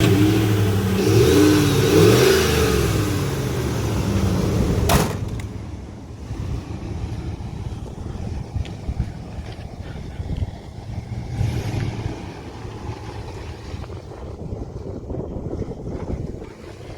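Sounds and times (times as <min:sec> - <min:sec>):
engine revving: 0:00.0 - 0:05.2, 0:11.0 - 0:13.9
engine idling: 0:00.0 - 0:11.3.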